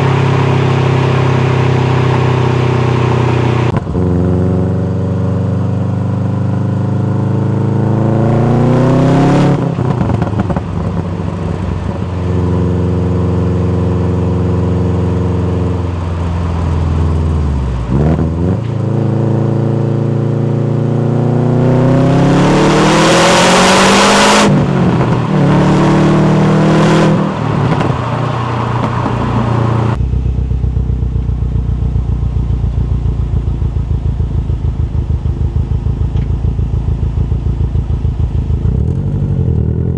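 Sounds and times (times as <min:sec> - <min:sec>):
car engine revving: 0:00.0 - 0:39.9
engine lumpy idle: 0:30.0 - 0:39.2.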